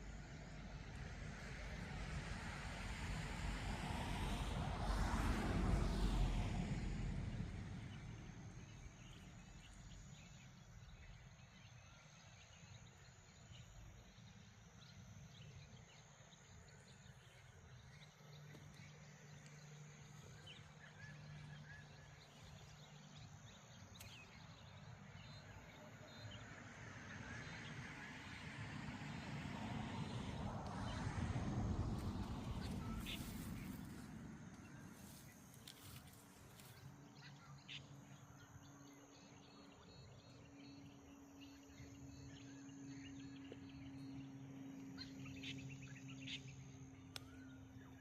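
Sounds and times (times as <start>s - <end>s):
faint low hum: 0.0s - 48.0s
wind rumbling: 29.5s - 35.5s.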